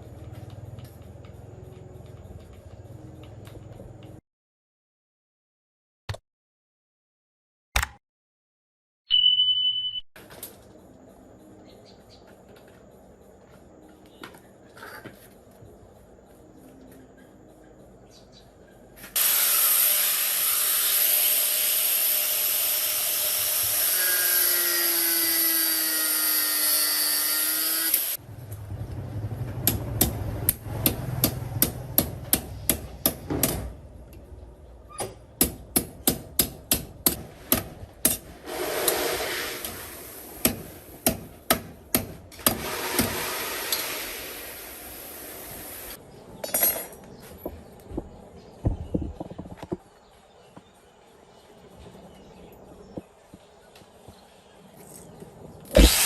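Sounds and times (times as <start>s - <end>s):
power tool running: 19.2s - 28.2s, 55.8s - 56.0s.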